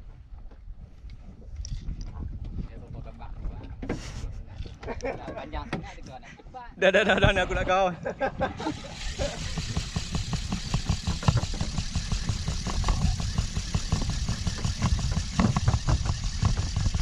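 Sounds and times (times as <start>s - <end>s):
boat engine thudding: 8.6s - 17.0s.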